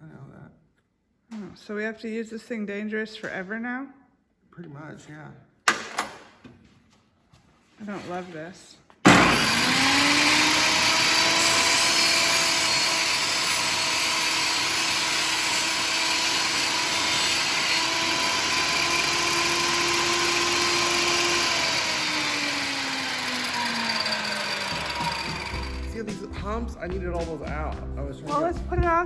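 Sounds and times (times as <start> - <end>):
electric saw cutting wood: 9.1 - 26.0.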